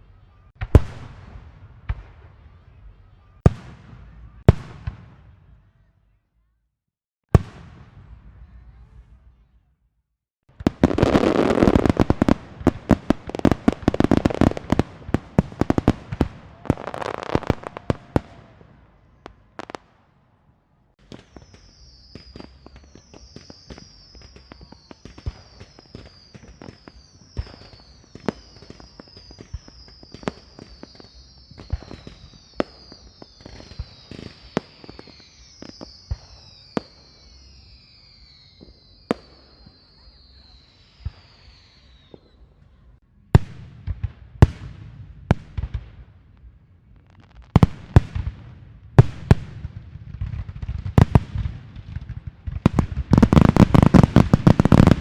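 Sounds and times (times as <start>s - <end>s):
firecrackers going off: 10.5s - 20.2s, 21.0s - 42.4s, 47.0s - 55.0s
high falling whistles: 21.2s - 42.4s.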